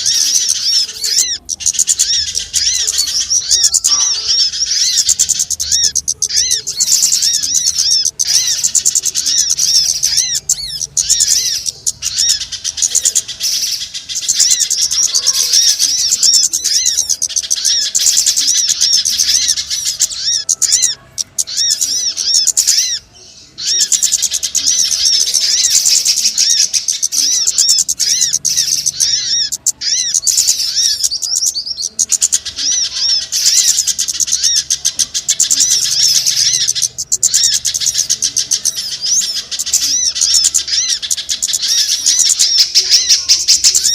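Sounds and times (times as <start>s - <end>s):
songbirds chirping and trilling: 0.0s - 43.9s.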